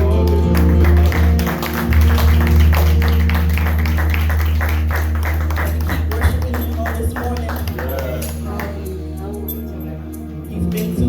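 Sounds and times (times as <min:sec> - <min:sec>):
percussion hits: 0:00.0 - 0:09.0
bass line: 0:00.0 - 0:09.5
church band music: 0:00.0 - 0:11.0.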